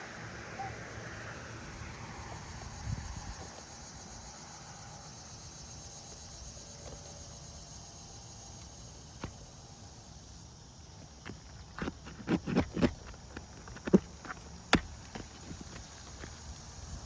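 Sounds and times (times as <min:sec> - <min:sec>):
crickets chirring: 0:00.0 - 0:17.0
nail remover knocking on roof: 0:11.2 - 0:16.4.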